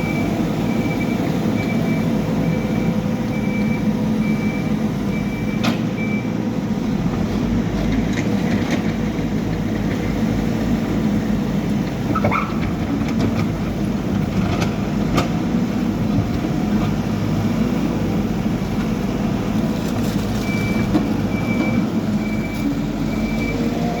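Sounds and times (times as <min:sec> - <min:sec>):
reversing alarm beeping: 0:00.0 - 0:06.4, 0:20.4 - 0:24.0
backhoe diesel engine running: 0:00.0 - 0:24.0.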